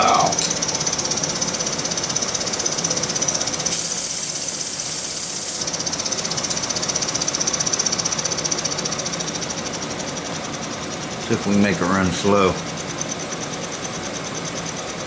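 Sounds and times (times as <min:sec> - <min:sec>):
toy steam engine running: 0:00.0 - 0:07.9
steam hissing: 0:01.4 - 0:05.8.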